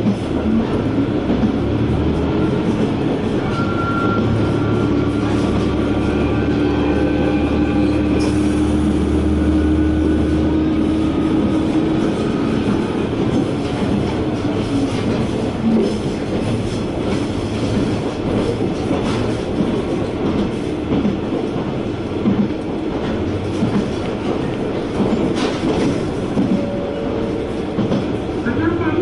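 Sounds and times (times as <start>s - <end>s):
train running noise: 0.0s - 29.0s
wheel clatter over rail joints: 10.9s - 28.2s.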